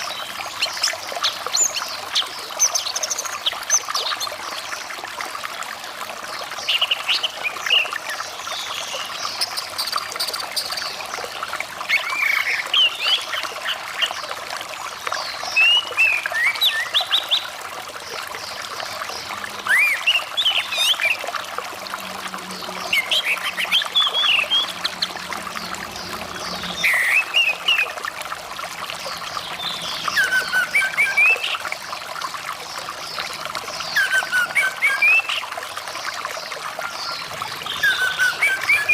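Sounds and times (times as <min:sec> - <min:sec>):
flowing water rushing: 0:00.0 - 0:38.9
bird whistling song: 0:26.8 - 0:27.8, 0:30.0 - 0:31.6, 0:33.9 - 0:35.4, 0:37.7 - 0:38.9.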